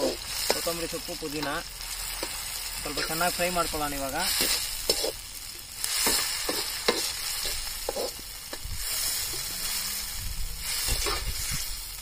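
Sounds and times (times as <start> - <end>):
vegetables sizzling in oil: 0.0 - 12.0
metal skimmer scraping a pan: 10.7 - 11.8.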